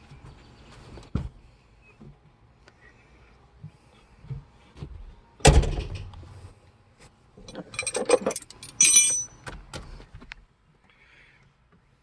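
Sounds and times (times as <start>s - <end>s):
keys jangling and clinking: 7.4s - 9.4s.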